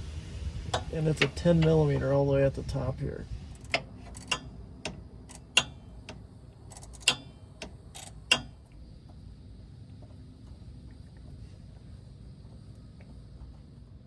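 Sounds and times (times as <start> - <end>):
metallic clicks of hand tools: 3.6 - 8.5.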